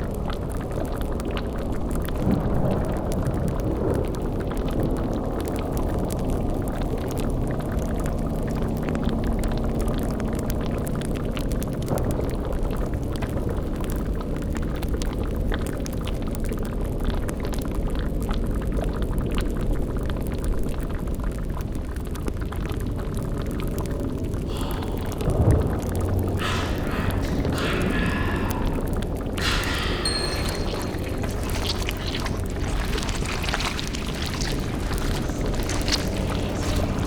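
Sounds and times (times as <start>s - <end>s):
bubbling cauldron: 0.0s - 37.0s
small crackles: 0.0s - 37.0s
low rumble and drone: 23.1s - 37.0s.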